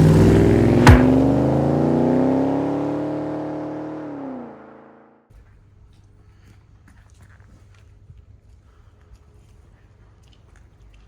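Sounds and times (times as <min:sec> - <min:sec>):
car engine revving: 0:00.0 - 0:05.1
sharp click: 0:00.8 - 0:01.3.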